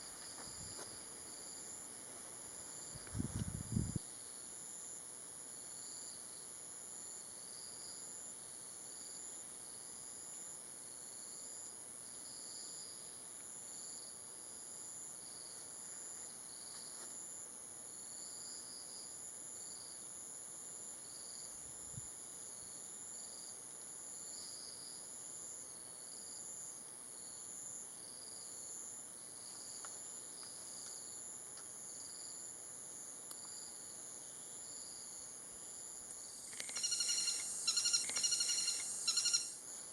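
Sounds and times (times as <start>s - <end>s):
insect whine: 0.0s - 39.9s
rhythmic insect chirps: 22.4s - 39.9s.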